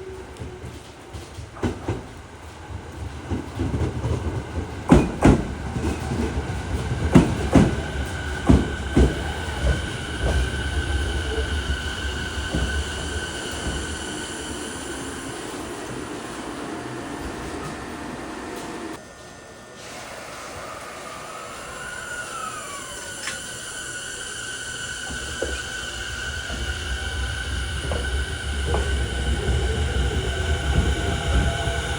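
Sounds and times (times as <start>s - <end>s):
train wheel clacks on rail joints: 0.0s - 19.0s, 25.0s - 31.9s
low train rumble: 0.0s - 21.6s, 23.4s - 31.9s
steady high whine: 7.8s - 31.9s.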